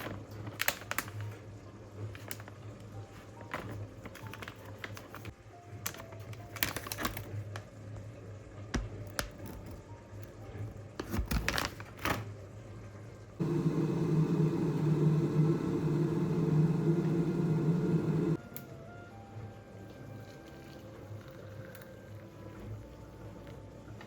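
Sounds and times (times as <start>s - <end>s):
appliance mechanical hum: 12.4s - 20.1s.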